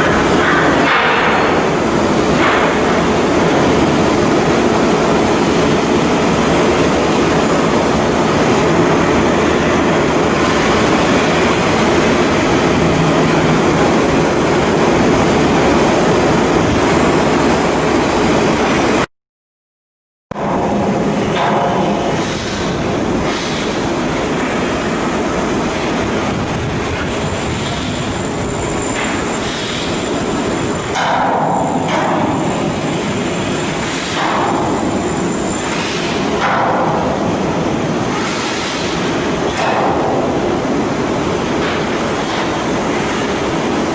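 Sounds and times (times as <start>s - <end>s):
heavy machinery din: 0.0s - 19.1s.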